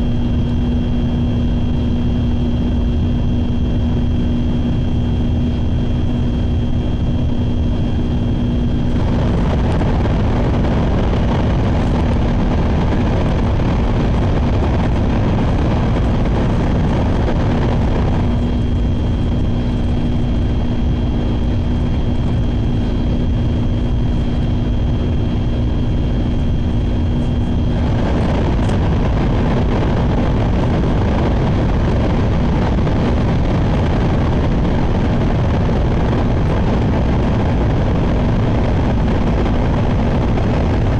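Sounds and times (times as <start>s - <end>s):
faint hum: 0.0s - 40.9s.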